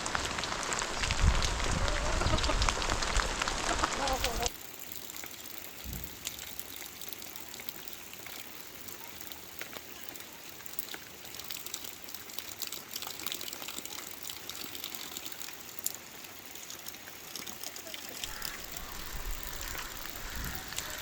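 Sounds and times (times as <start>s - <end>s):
heavy rain falling: 0.0s - 4.6s, 18.0s - 21.0s
water running and pouring: 0.0s - 21.0s.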